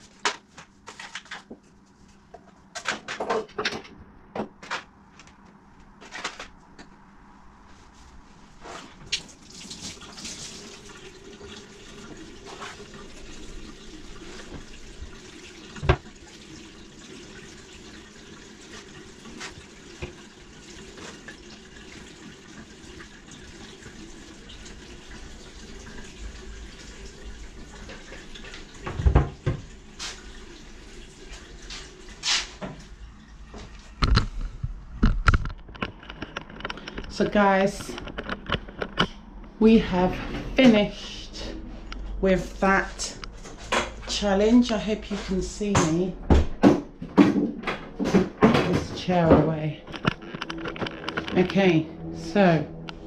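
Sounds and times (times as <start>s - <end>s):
knocks and clatters of items: 2.3s - 6.6s, 33.6s - 39.4s, 45.7s - 51.6s
tap water running into sink: 9.1s - 32.8s.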